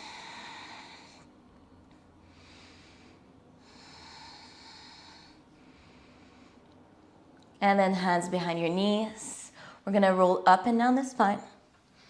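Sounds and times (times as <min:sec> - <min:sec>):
faint hissy breathing: 0:00.0 - 0:07.3, 0:09.4 - 0:09.9.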